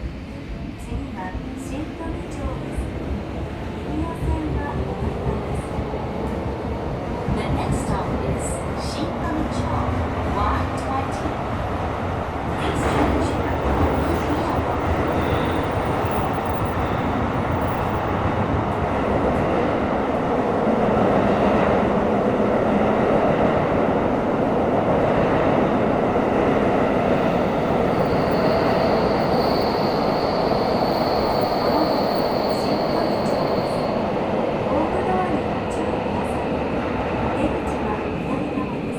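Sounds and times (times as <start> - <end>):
subway wheels rumbling: 0.0 - 38.9
thin high whine: 27.7 - 34.0.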